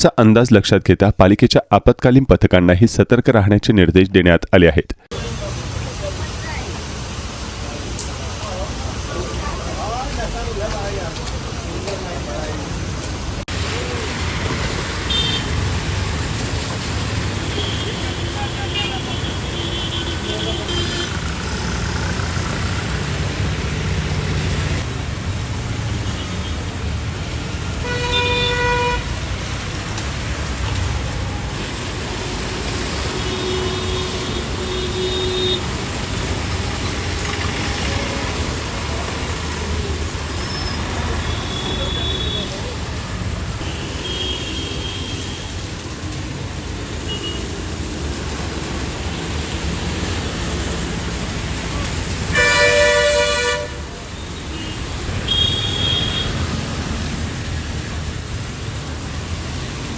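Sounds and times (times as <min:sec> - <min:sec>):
road traffic rumbling: 0:05.0 - 0:59.9
rain and wet tyres hissing: 0:05.1 - 0:59.9
vehicle horn toot: 0:15.1 - 0:15.5, 0:17.5 - 0:21.2, 0:27.8 - 0:29.1, 0:33.2 - 0:35.6, 0:40.5 - 0:42.6, 0:43.6 - 0:45.5, 0:52.3 - 0:53.8, 0:54.5 - 0:56.4.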